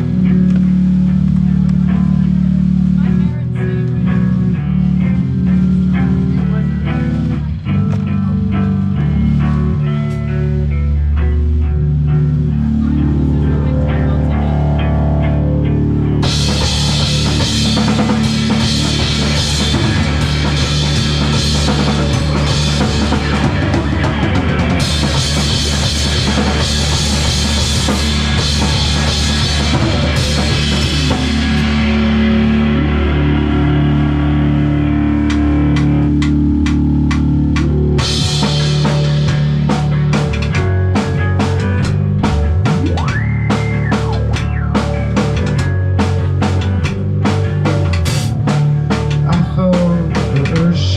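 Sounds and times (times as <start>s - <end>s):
guitar and bass: 0.0s - 50.9s
live rock band playing: 0.0s - 50.9s
drum kit and cymbals: 16.2s - 50.9s.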